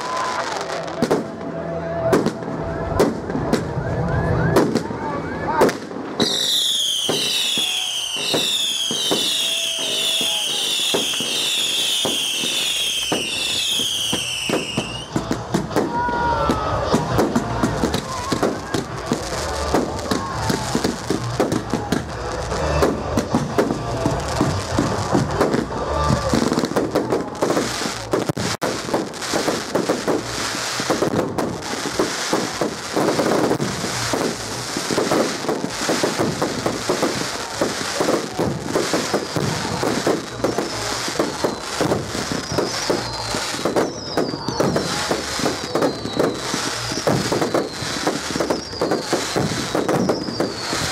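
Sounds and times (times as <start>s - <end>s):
fireworks bangs and crackle: 0.0s - 50.9s
falling firework whistles: 3.0s - 15.8s, 24.4s - 50.9s.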